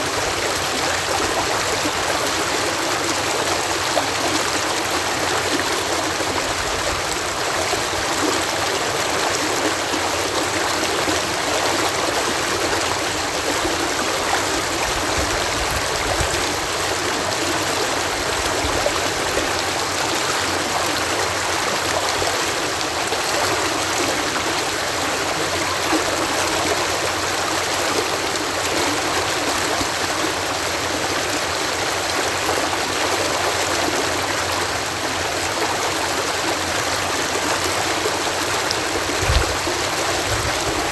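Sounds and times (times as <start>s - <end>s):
water cascading over lock: 0.0s - 40.9s.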